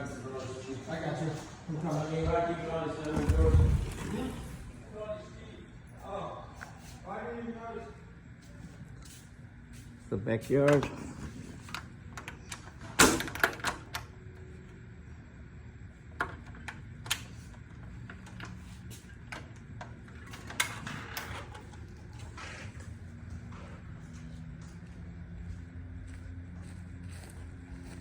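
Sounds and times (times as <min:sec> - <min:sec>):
door unlatching and opening: 0:02.9 - 0:04.8, 0:10.7 - 0:14.1, 0:19.2 - 0:22.8.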